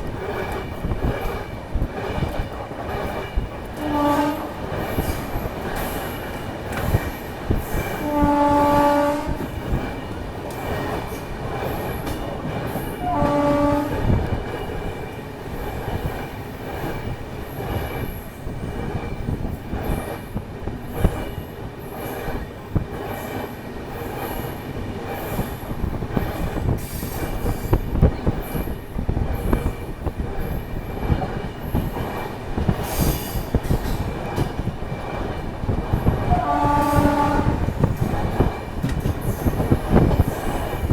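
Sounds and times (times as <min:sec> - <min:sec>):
train rumble and wheel clatter: 0:00.0 - 0:40.9
locomotive horn blasts: 0:03.8 - 0:04.6, 0:08.0 - 0:09.6, 0:13.0 - 0:14.2, 0:36.3 - 0:37.8.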